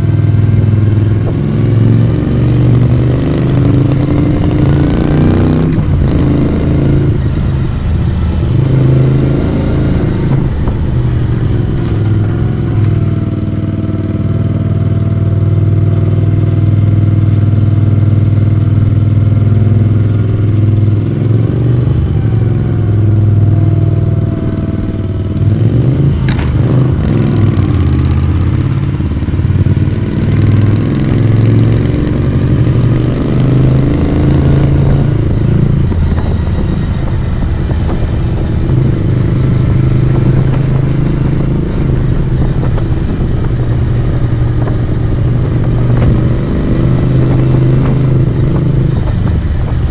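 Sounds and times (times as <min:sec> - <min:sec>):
motorcycle engine and exhaust: 0:00.0 - 0:49.9.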